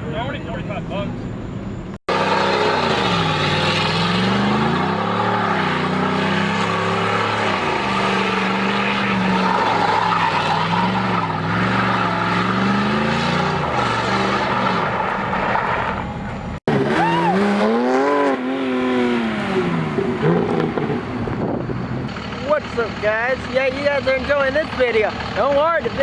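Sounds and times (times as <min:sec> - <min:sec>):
engine revving hard: 0:02.1 - 0:15.0, 0:16.6 - 0:21.1
tyres squealing: 0:02.2 - 0:17.8.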